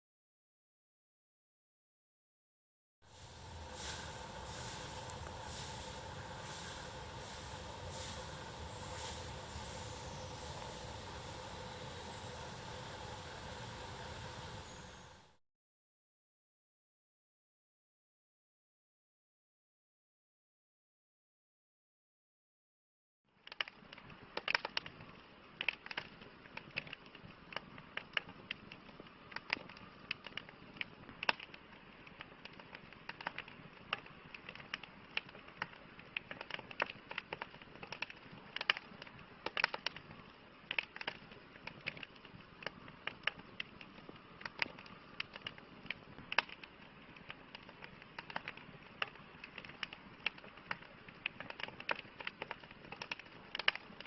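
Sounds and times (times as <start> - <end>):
steady hiss: 3.0 - 15.4
campfire crackling and popping: 3.1 - 15.2, 23.4 - 54.0.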